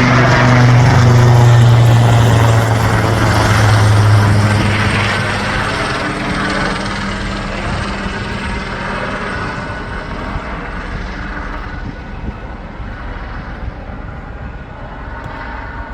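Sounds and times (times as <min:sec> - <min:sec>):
helicopter rotor and turbine: 0:00.0 - 0:15.9.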